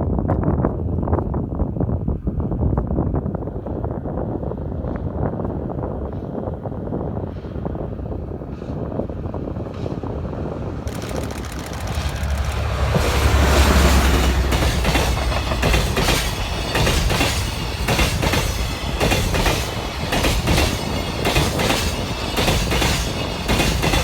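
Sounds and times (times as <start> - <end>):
locomotive engine rumble: 7.3 - 21.3
train wheels clacking on rails: 8.4 - 24.0.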